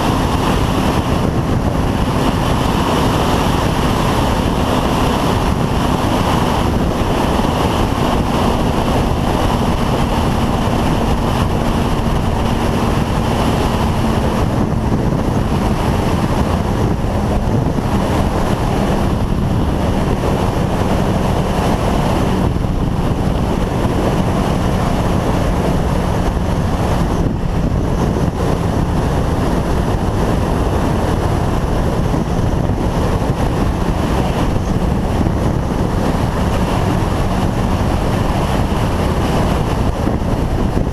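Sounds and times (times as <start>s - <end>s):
motorcycle engine: 0.0s - 40.9s
wind rushing over microphone: 0.0s - 40.9s.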